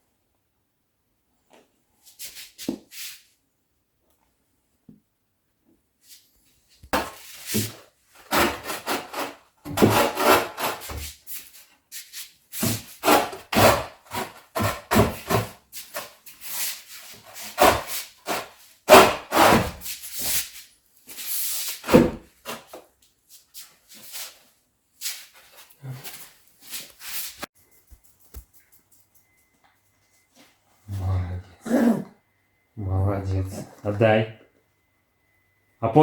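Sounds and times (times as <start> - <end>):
scraping against wood: 7.0 - 11.1, 12.6 - 16.1.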